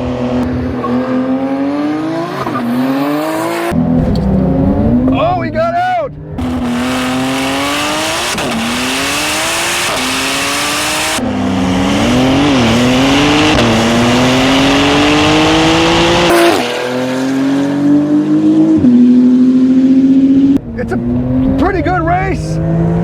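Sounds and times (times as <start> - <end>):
car engine at full throttle: 0.0 - 23.0.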